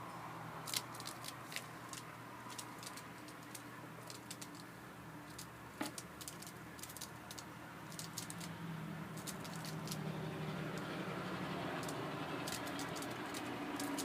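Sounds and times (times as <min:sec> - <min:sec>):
bird claws and beak tapping: 0:00.7 - 0:04.7, 0:05.3 - 0:08.5, 0:09.2 - 0:10.0, 0:11.8 - 0:14.0.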